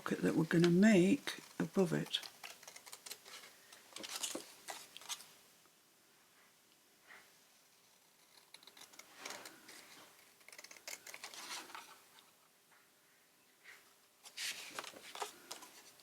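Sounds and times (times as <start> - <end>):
paper rustling: 0.6 - 5.3, 8.6 - 12.2, 14.2 - 16.0
scissors snipping paper: 2.0 - 5.2, 8.2 - 11.9.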